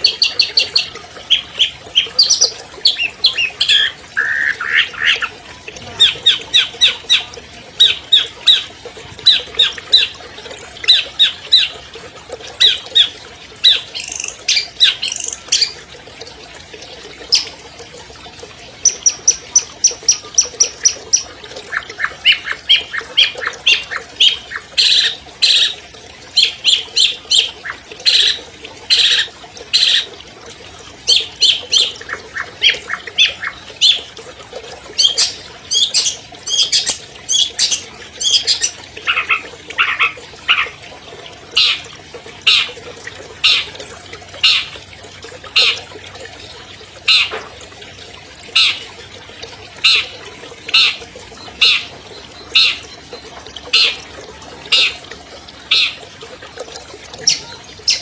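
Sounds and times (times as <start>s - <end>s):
shrike singing chattering song: 18.8s - 25.8s, 34.9s - 40.8s.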